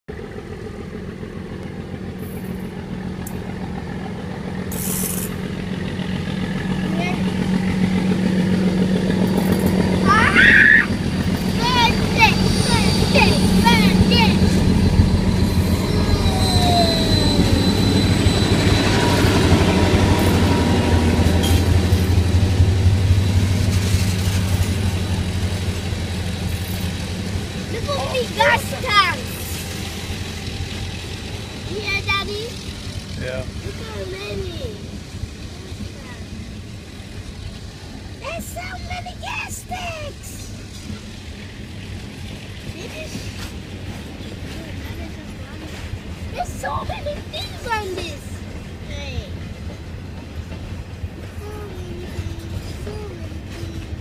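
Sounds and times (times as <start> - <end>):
diesel locomotive engine running: 0.1 - 54.0
freight train rumbling: 0.1 - 54.0
wheels squealing: 1.4 - 54.0
short hisses: 4.7 - 5.4.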